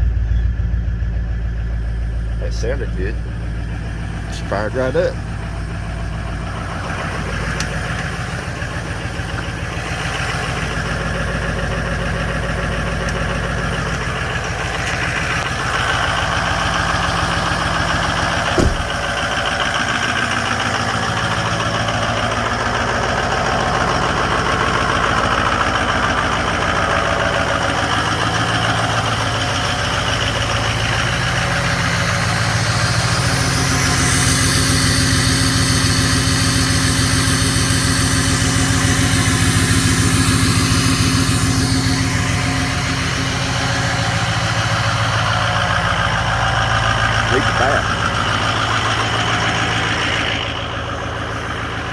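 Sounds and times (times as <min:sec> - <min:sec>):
diesel engine idling: 0:00.0 - 0:51.9
higher engine tone: 0:00.0 - 0:51.9.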